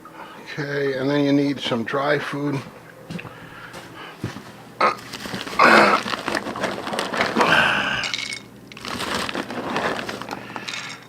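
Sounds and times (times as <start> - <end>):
dry pet food rattling: 3.2 - 11.0.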